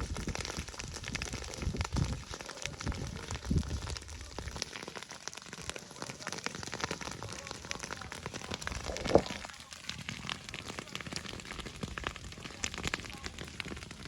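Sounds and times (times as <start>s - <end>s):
dry grass crackling in fire: 0.0s - 14.0s.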